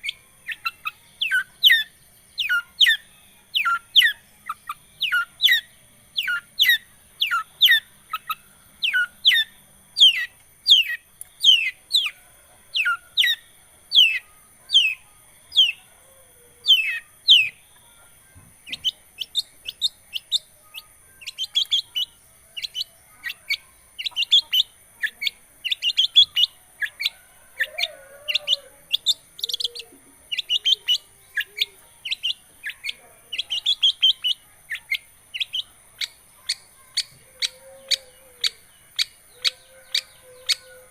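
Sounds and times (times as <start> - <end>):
bird high chattering notes: 27.6 - 40.7.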